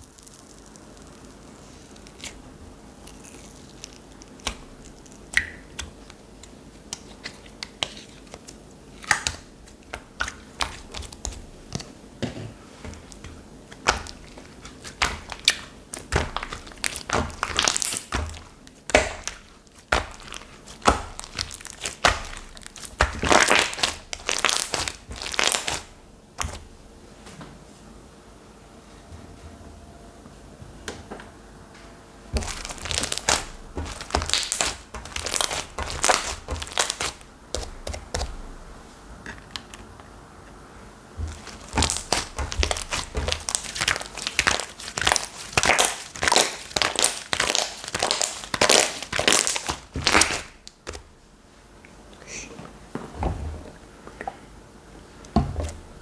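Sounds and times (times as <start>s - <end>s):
sticky slime clicks and crackles: 0.0s - 2.4s, 3.0s - 11.9s, 13.1s - 26.6s, 32.4s - 38.4s, 41.3s - 51.1s.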